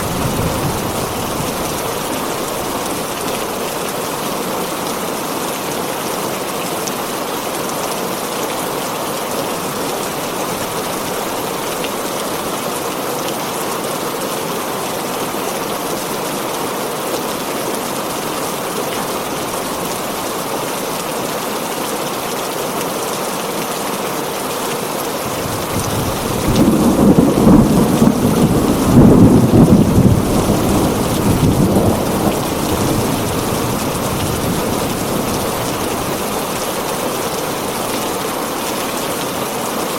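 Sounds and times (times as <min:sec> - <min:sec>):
thunder rumbling: 0:00.0 - 0:03.1, 0:25.3 - 0:36.9
heavy rain on a tin roof: 0:00.0 - 0:39.9.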